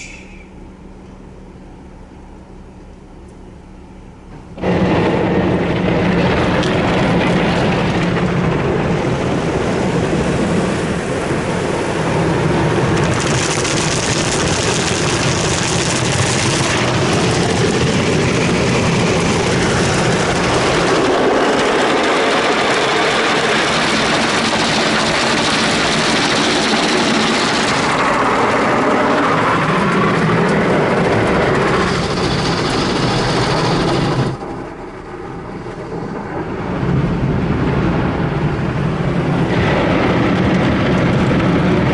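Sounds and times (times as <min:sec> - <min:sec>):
car wash machinery: 0:00.0 - 0:41.9
car wash water spray: 0:04.5 - 0:40.2.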